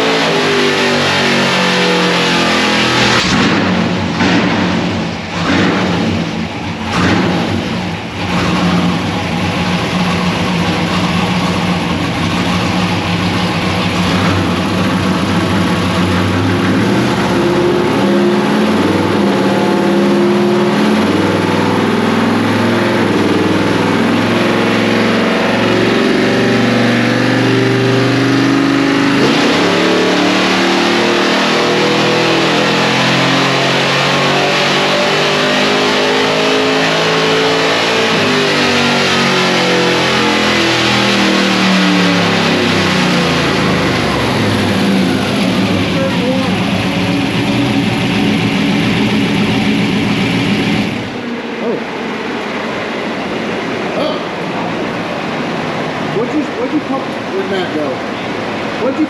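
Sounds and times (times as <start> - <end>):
truck engine running hard: 0.0 - 59.0.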